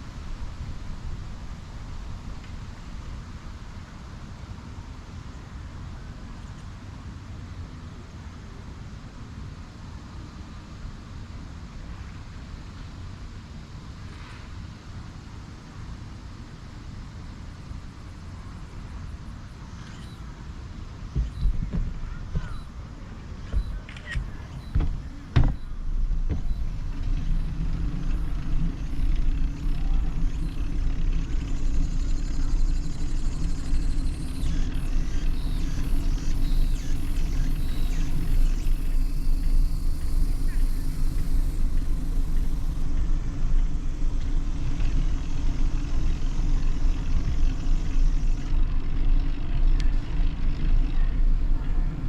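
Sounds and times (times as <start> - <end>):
low rumble: 21.0 - 52.0
sharp knocks: 21.2 - 22.7, 23.5 - 26.7
hiss: 32.6 - 43.3.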